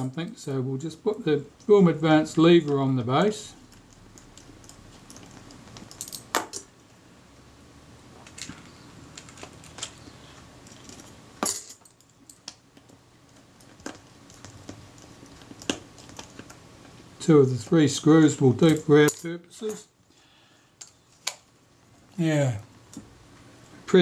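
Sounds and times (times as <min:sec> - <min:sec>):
small metal parts clicking: 0:03.7 - 0:06.7.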